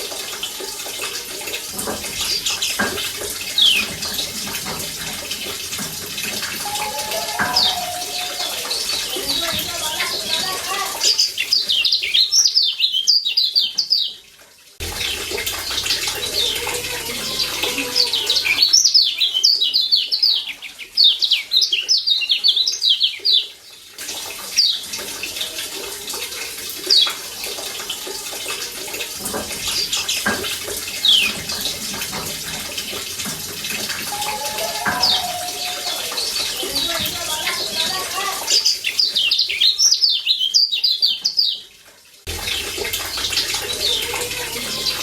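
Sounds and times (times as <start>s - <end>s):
bird chirping calls: 42.3s - 45.0s.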